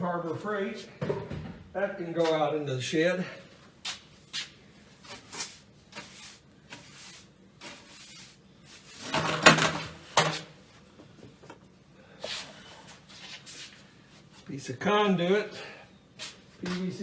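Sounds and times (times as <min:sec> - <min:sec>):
tools clattering: 0:09.0 - 0:10.5.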